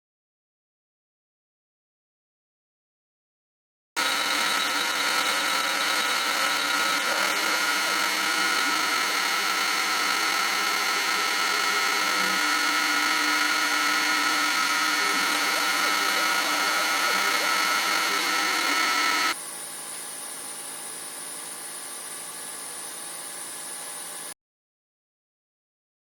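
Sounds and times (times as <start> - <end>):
power tool motor whining: 4.0 - 19.4.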